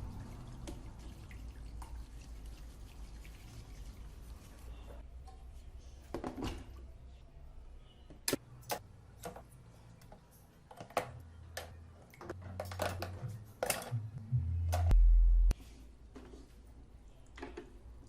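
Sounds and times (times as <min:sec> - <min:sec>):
low hum: 0:14.0 - 0:15.6.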